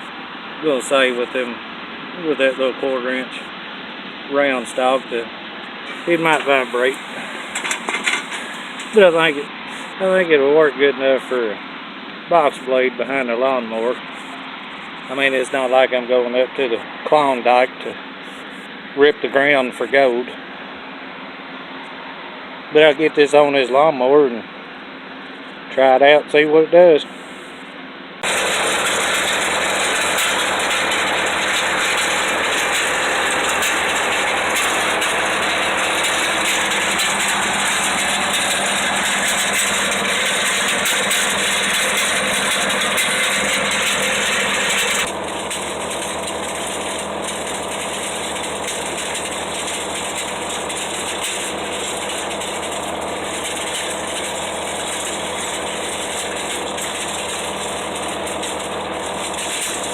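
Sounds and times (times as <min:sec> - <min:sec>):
riding mower engine running: 0:00.0 - 0:23.8, 0:27.0 - 0:59.9
mechanical rattle: 0:05.8 - 0:09.4, 0:28.2 - 0:59.9.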